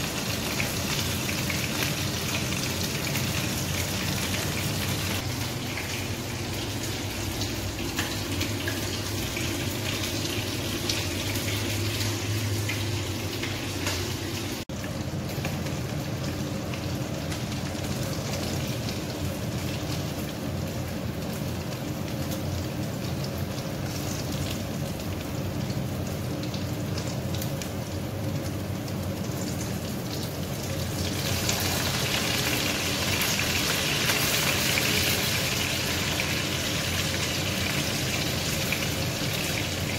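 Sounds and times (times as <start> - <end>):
chicken frying in hot oil: 0.0 - 39.9.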